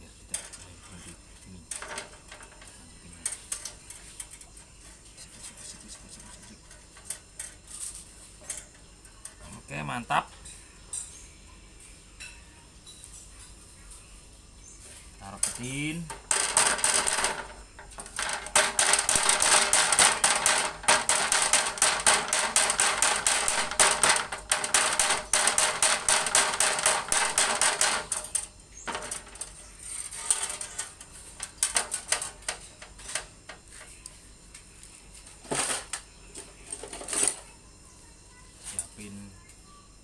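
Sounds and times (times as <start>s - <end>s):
knocks: 15.4s - 29.5s.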